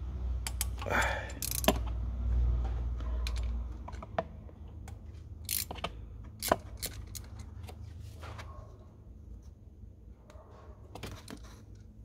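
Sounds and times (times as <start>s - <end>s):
metallic clicks of tools on engine: 0.4s - 2.0s, 3.0s - 7.8s.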